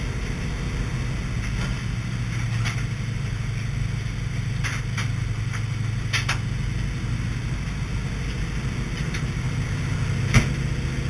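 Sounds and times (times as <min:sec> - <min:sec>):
radial aircraft engine droning: 0:00.0 - 0:11.0.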